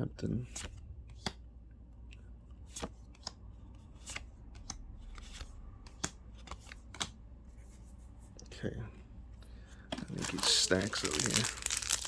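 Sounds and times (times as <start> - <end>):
cards flipped by hand: 4.0 - 7.2.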